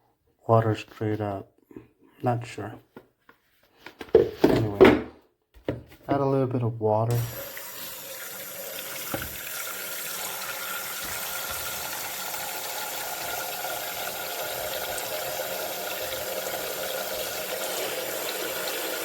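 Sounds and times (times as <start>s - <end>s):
tap water filling a tank: 7.1s - 19.0s.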